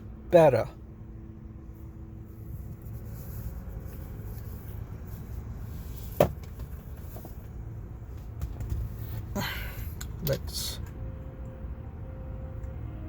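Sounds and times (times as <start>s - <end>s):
car cabin rumble: 1.8s - 11.2s.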